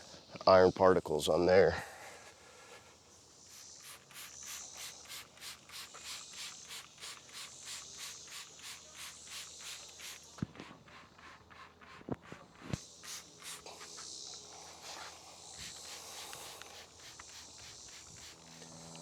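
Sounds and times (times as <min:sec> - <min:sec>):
spray bottle squirting: 0:03.4 - 0:19.0.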